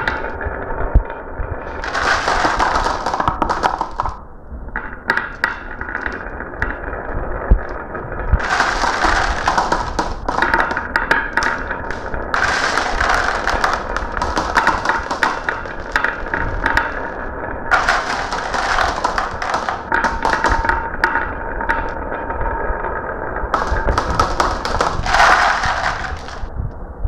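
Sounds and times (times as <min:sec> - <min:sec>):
marbles rolling down a track: 0:00.0 - 0:04.2, 0:04.8 - 0:26.5.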